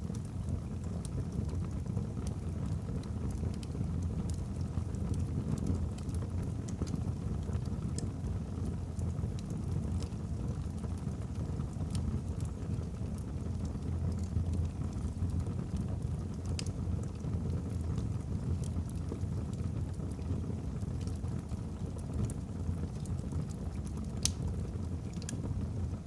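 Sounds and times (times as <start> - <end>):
fire crackling: 0.0 - 26.0
fire rumbling: 0.0 - 26.0.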